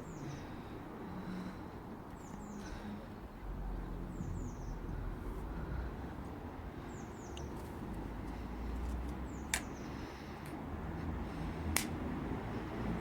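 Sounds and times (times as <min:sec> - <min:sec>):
low outdoor rumble: 0:00.0 - 0:13.0
small birds chirping: 0:02.1 - 0:03.3, 0:06.8 - 0:10.3.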